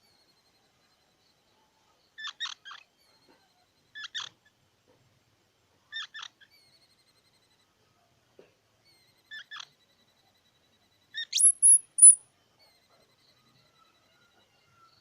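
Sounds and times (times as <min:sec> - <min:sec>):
faint thin whistled notes: 0:11.2 - 0:12.2
squirrel chip calls: 0:11.2 - 0:12.2.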